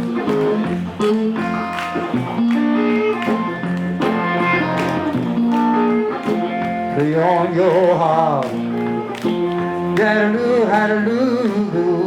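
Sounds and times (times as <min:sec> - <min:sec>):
bass line: 0:00.0 - 0:12.0
blues guitars playing: 0:00.0 - 0:12.0.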